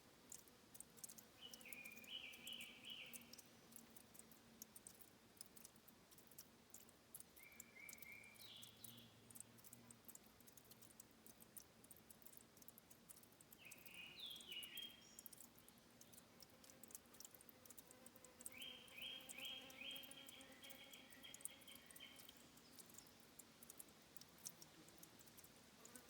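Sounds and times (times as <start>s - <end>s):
faint high ticking: 0.0s - 26.0s
forest bird singing: 1.4s - 3.5s, 7.4s - 9.4s, 13.5s - 16.2s, 18.5s - 23.3s.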